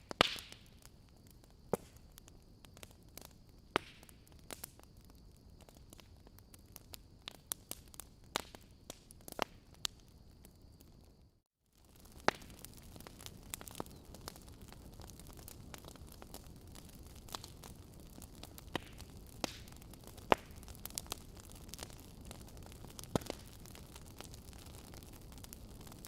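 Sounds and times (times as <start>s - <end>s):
wood fire crackling and popping: 0.0s - 26.0s
fire hissing: 11.8s - 26.0s.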